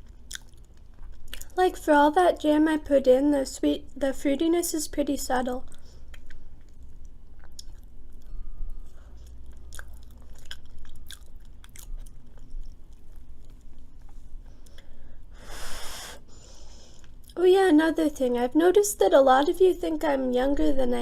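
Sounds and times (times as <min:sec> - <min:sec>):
chewing food: 0:00.0 - 0:01.6, 0:05.6 - 0:14.9.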